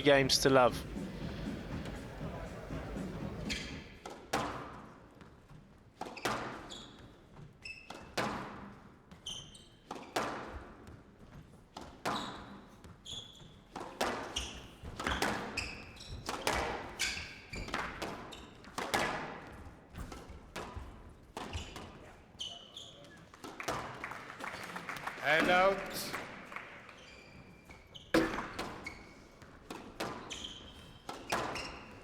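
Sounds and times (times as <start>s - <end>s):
shoes squeaking on court floor: 0.0s - 23.8s, 24.5s - 32.0s
squash ball hits: 0.7s - 4.8s, 10.0s - 10.6s, 13.7s - 22.0s, 28.1s - 32.0s.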